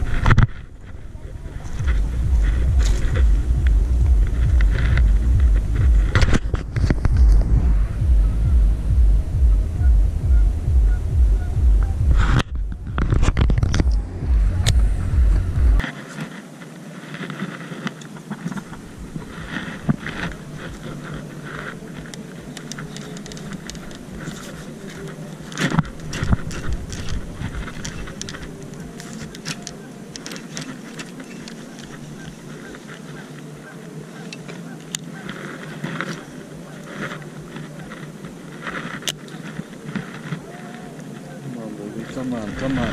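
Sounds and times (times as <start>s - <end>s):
wind buffeting microphone: 0.0s - 15.8s, 18.3s - 42.9s
hands handling fishing rod: 15.8s - 42.9s.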